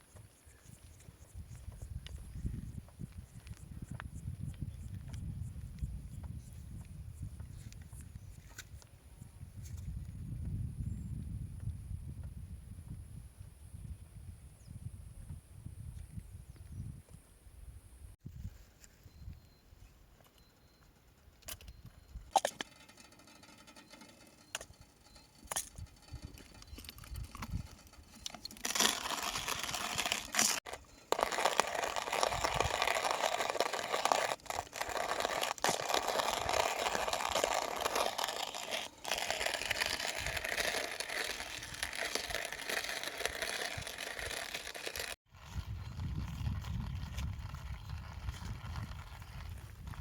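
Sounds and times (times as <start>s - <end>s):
scattered clicks and knocks: 20.2s - 28.6s
dense crunching and crackling: 22.3s - 50.0s.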